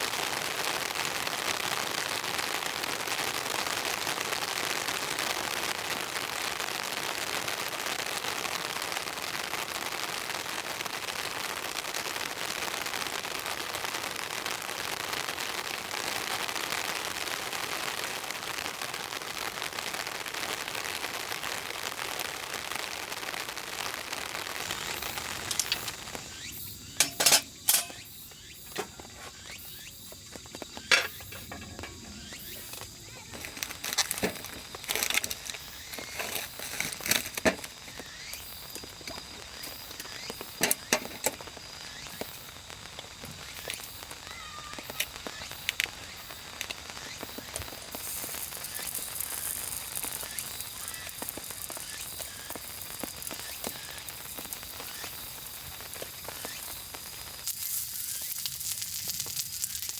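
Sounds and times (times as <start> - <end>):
rain falling: 0.0 - 59.9
sharp cracks and snaps: 24.6 - 59.9.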